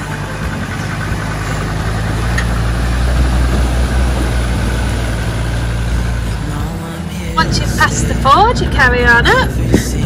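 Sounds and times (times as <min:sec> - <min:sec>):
water splashing around wheels: 0:00.0 - 0:06.6
engine running at low revs: 0:00.0 - 0:10.0.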